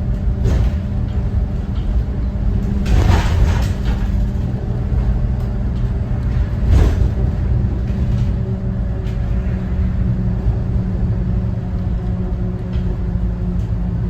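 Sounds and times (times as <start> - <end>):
bus diesel engine drone: 0.0 - 14.0
road rumble: 0.0 - 14.0.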